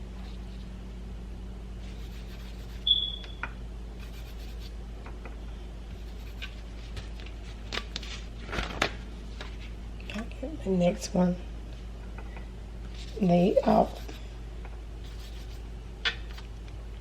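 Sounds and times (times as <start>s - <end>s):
steady low hum: 0.0s - 17.0s
short high squeak: 2.8s - 3.4s.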